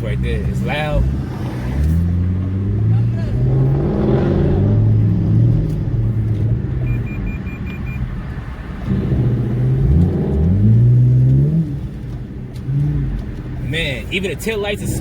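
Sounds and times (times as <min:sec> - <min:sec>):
short electronic beeps: 0:06.8 - 0:08.1.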